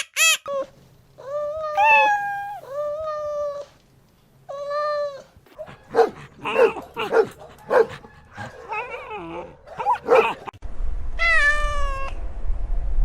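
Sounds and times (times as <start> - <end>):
dog barking: 5.6 - 9.0, 9.6 - 10.6
cat meowing: 11.2 - 12.2.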